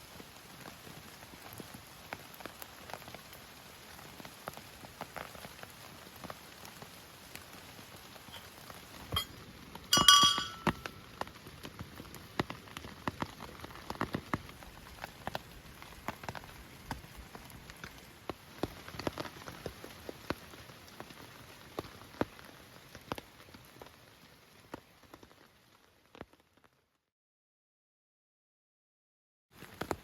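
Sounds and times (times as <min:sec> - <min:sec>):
rain falling: 0:00.0 - 0:26.9, 0:29.6 - 0:30.0
ringing metallic clink: 0:09.1 - 0:09.3, 0:09.9 - 0:10.9
drops tapping: 0:09.1 - 0:10.9.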